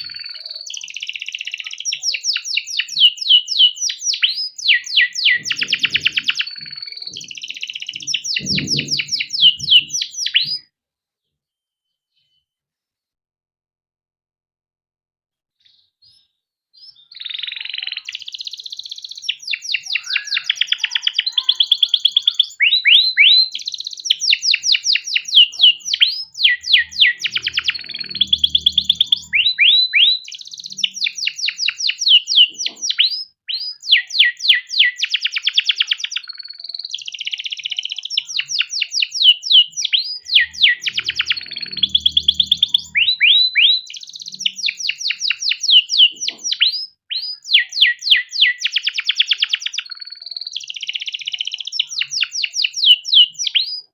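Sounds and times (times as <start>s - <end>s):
canary singing trills: 0.0s - 10.7s, 15.6s - 53.9s.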